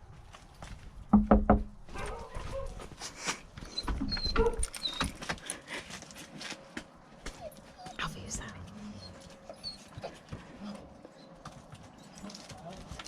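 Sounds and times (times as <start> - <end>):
knocks and clicks: 1.1 - 1.8
dog whining: 3.7 - 5.2, 7.3 - 12.4.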